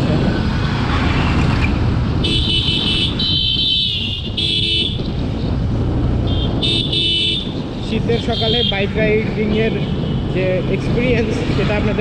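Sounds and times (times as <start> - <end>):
motorcycle engine rumble: 0.0 - 12.0
wind: 0.0 - 12.0
vehicle horn honking: 2.2 - 5.0, 6.3 - 7.5.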